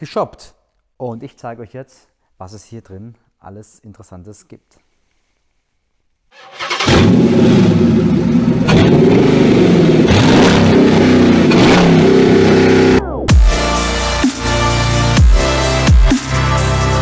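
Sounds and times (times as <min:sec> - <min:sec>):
car engine revving: 0:06.6 - 0:13.0
electronic dance music: 0:12.9 - 0:17.0.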